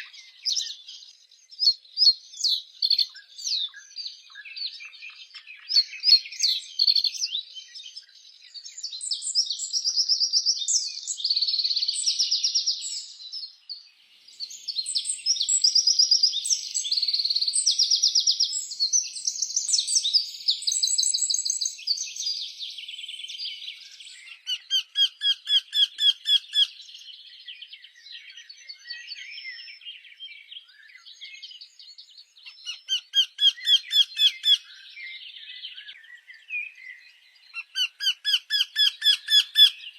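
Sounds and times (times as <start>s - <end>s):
songbirds trilling and chirping: 0.0s - 39.9s.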